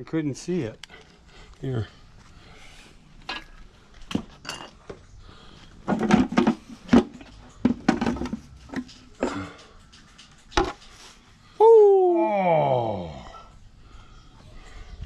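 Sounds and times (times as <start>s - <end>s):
metal clanks and clinks: 3.2s - 4.9s, 5.9s - 11.2s.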